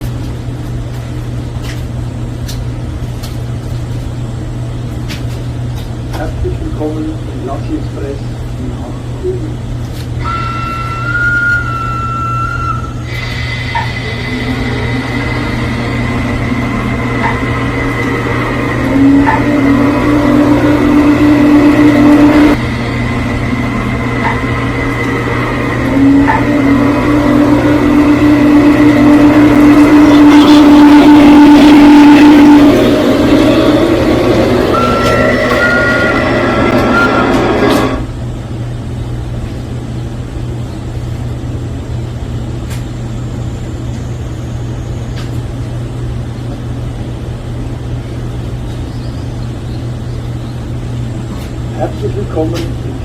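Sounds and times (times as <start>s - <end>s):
model train engine hum: 6.2s - 39.0s.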